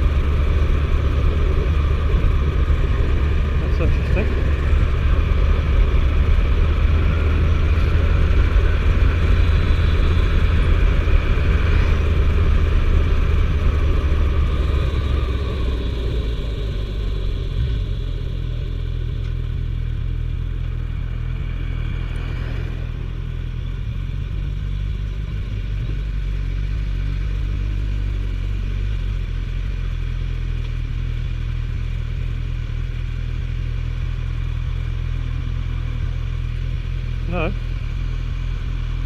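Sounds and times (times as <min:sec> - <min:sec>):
motorcycle engine cruising: 0:00.0 - 0:39.0
wind and road noise: 0:00.0 - 0:39.0.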